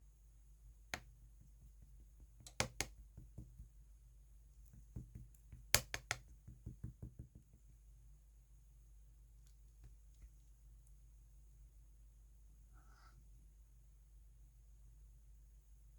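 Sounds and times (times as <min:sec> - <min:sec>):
slime clicking and popping: 0:05.7 - 0:06.2.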